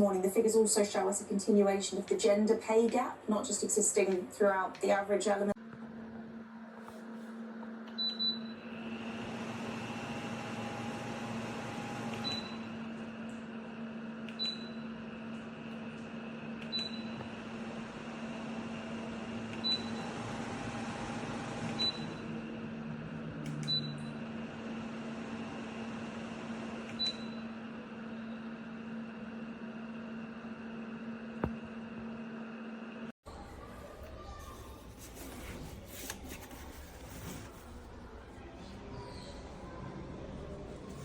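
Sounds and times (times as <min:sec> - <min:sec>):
tower fan humming: 0:08.6 - 0:37.5.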